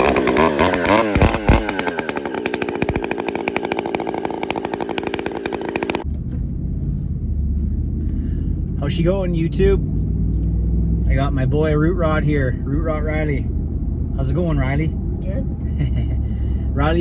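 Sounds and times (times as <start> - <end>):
chainsaw revving: 0.0 - 6.0
low steady rumble: 6.0 - 17.0.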